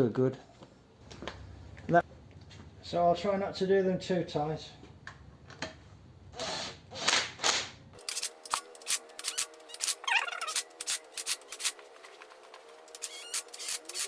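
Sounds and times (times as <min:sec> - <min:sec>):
rapid sharp metallic clicks: 0:08.0 - 0:11.8
hand tool rasping strokes: 0:08.0 - 0:14.0.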